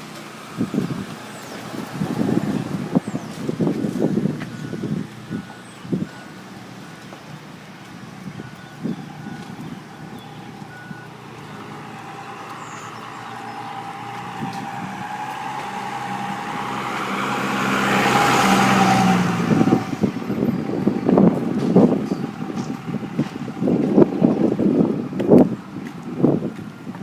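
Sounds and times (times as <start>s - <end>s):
truck passing: 0.0s - 27.0s
wind buffeting microphone: 0.0s - 27.0s.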